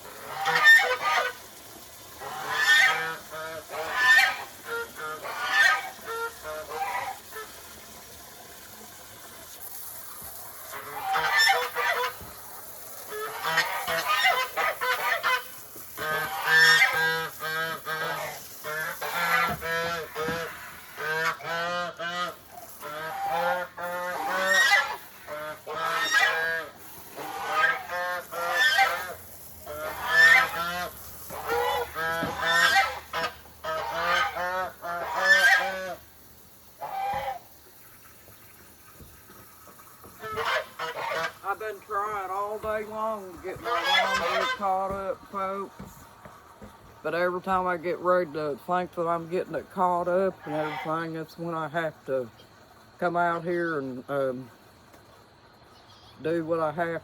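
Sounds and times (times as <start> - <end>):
goose honking: 0.2 - 1.5, 2.2 - 7.6, 10.7 - 12.2, 13.1 - 36.1, 36.8 - 37.9, 40.1 - 45.8, 50.4 - 51.1.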